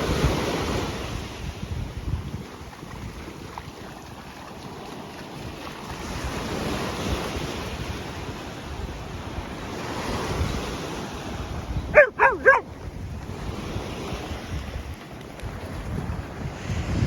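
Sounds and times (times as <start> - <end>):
surf washing: 3.0 - 16.9
wind on microphone: 11.3 - 17.0
dog barking: 11.9 - 12.7.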